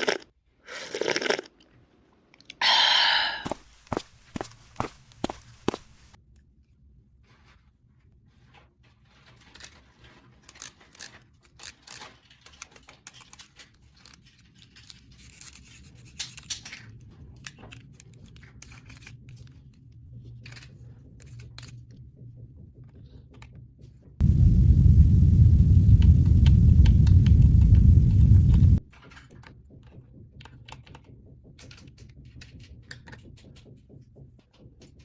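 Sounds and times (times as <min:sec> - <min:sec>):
plastic toy parts clicking: 0:10.4 - 0:19.6
loud low rumble: 0:24.2 - 0:28.8.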